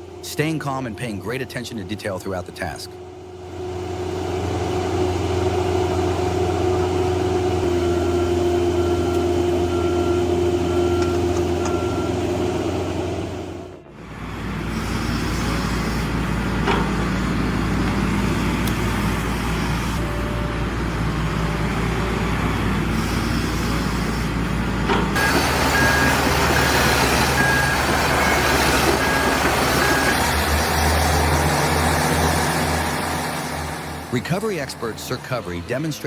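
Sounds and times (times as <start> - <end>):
diesel construction machinery: 0.0 - 36.0
reversing alarm beeping: 7.7 - 12.4, 25.2 - 31.1.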